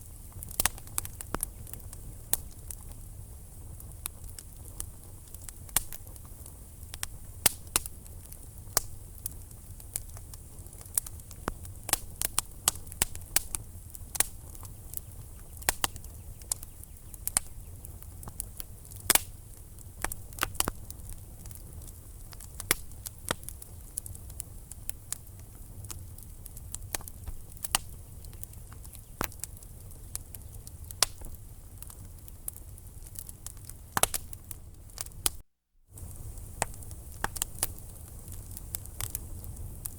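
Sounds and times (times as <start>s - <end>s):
logs crackling and popping: 0.0s - 39.9s
low rumble of flames: 0.0s - 39.9s.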